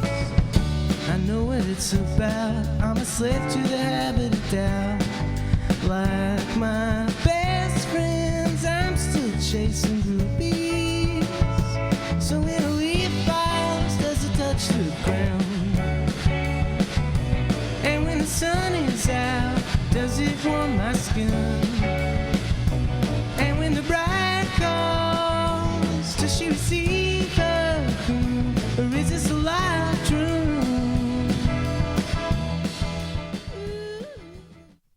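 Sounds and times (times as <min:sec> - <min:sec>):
electric guitar: 0:00.0 - 0:34.8
bass guitar: 0:00.0 - 0:34.9
drums: 0:00.0 - 0:34.9
person singing: 0:05.8 - 0:16.0, 0:17.8 - 0:22.1, 0:23.4 - 0:31.8.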